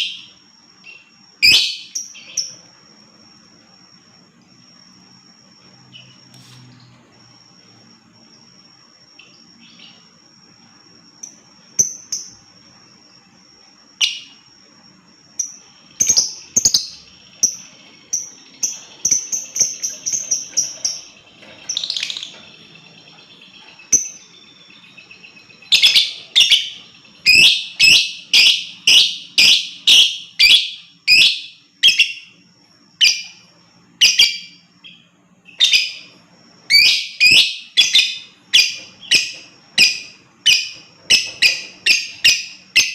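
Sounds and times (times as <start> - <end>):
lovebird shrill chirps: 23.7 - 32.3, 34.0 - 42.9.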